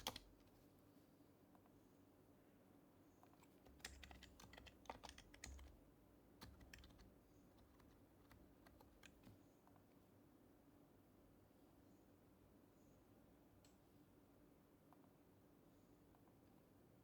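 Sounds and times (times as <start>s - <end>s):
soft keyboard keystrokes: 0.0s - 0.6s, 3.2s - 9.8s.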